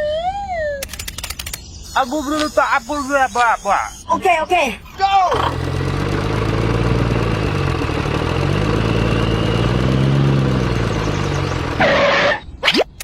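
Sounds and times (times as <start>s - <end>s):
upward-gliding squeak: 1.8s - 4.2s
engine running low throb: 4.8s - 11.9s
loud burst of noise: 5.3s - 9.8s.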